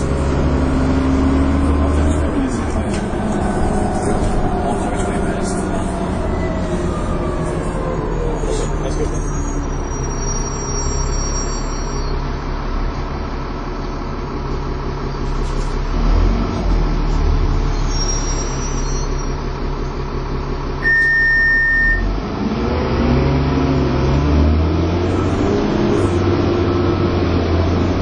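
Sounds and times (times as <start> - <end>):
bus engine running: 0.0 - 28.0
steady beep: 20.8 - 22.1.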